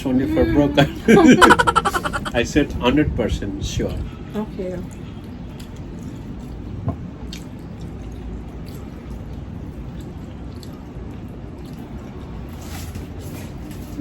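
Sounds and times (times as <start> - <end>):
low background noise: 0.0 - 14.0
wet chewing sounds: 4.8 - 14.0.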